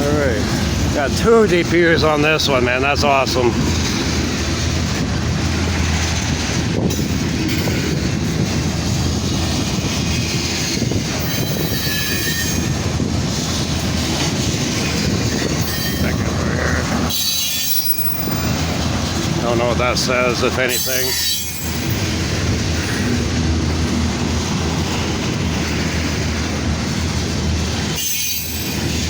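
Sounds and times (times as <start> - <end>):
train wheels clattering on rails: 0.0 - 29.0
high-pitched wheel squeals: 11.2 - 12.7, 15.6 - 16.2, 17.1 - 18.5, 20.7 - 21.9, 28.0 - 28.8.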